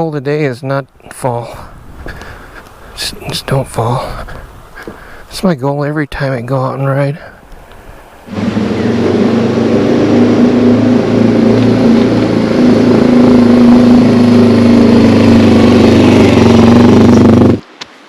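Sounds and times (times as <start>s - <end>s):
motorcycle engine running: 8.3s - 17.6s.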